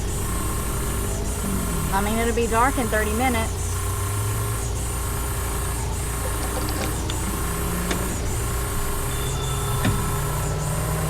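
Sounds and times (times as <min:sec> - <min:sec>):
engine humming: 0:00.0 - 0:11.0
small clicks: 0:06.0 - 0:10.6.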